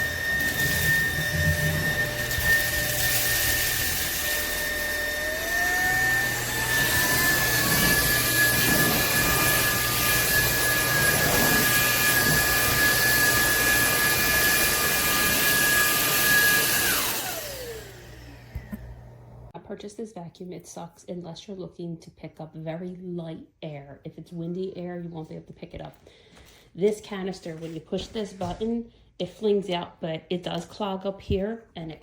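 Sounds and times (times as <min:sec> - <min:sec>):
vacuum motor whine: 0:00.0 - 0:19.5.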